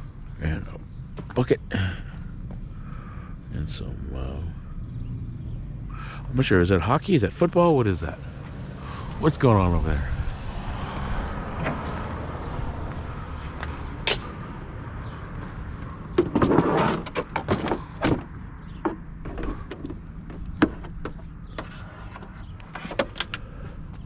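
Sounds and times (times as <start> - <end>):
vehicle engine idling: 0.0 - 16.4, 17.2 - 24.0
sharp clicks and clunks: 15.8 - 23.5.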